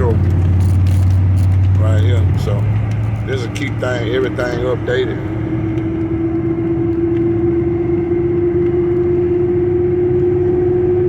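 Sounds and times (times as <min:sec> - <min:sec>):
rising whine: 0:00.0 - 0:11.0
vehicle engine and road noise: 0:00.0 - 0:11.0.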